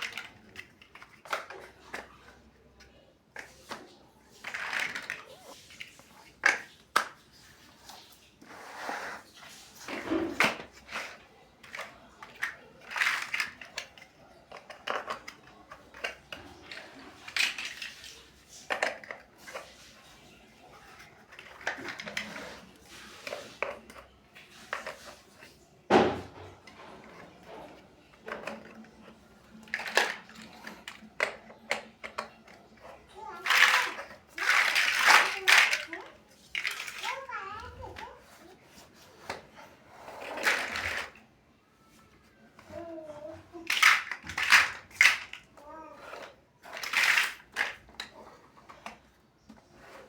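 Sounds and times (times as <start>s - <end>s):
plastic bricks clicking: 10.3s - 17.9s, 28.2s - 37.1s, 43.6s - 49.0s.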